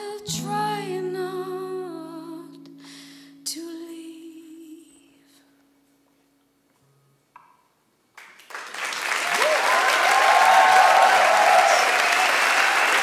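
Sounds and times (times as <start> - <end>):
audience applause: 8.2 - 13.0
crowd cheering and whooping: 9.1 - 13.0.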